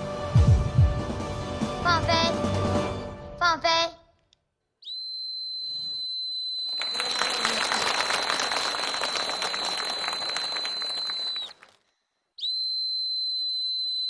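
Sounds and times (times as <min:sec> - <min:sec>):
long high whistle: 0:04.8 - 0:11.8, 0:12.4 - 0:14.0
applause: 0:06.7 - 0:12.0.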